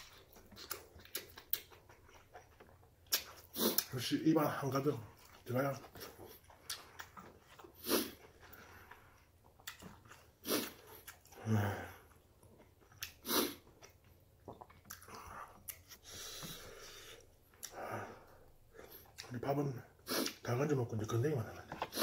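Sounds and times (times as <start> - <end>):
person chewing: 0.0 - 4.0, 5.0 - 17.8, 18.8 - 19.3
breaths through the nose: 15.2 - 19.1.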